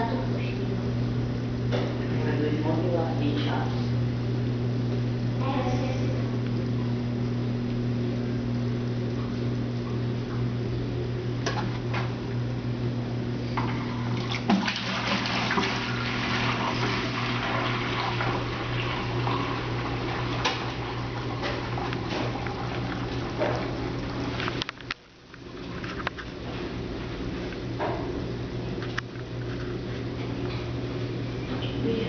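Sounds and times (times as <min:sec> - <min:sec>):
drain pump humming: 0:00.0 - 0:32.0
water rushing and sloshing: 0:14.0 - 0:24.4.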